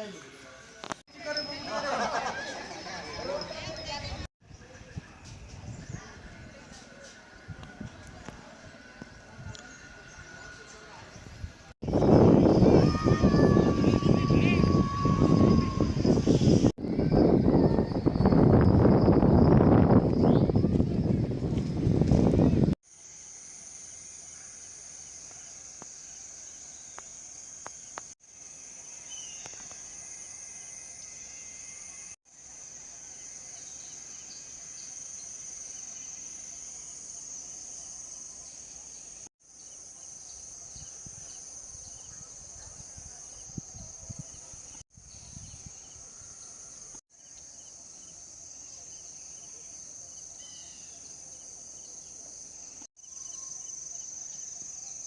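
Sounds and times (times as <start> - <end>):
insects chorus: 0.0 - 5.0, 5.7 - 55.0
faint bird chirps: 33.0 - 55.0.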